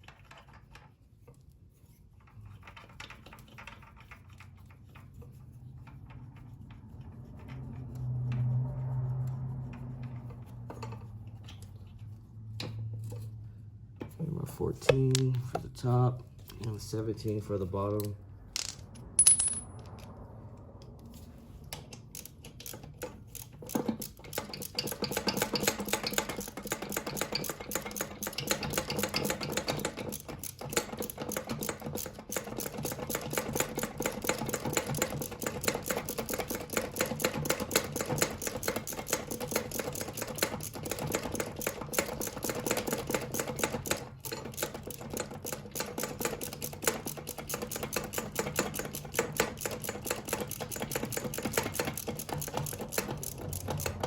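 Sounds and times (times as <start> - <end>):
sharp metal clink: 18.6 - 19.8
ratchet wrench clicking: 22.0 - 54.0.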